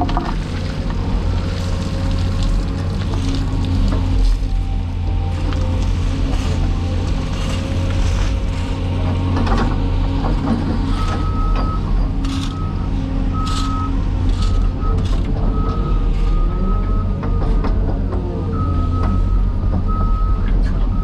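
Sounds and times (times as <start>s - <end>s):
diesel construction equipment droning: 0.0s - 21.0s
backup alarm beeping: 2.8s - 8.0s, 10.9s - 17.8s.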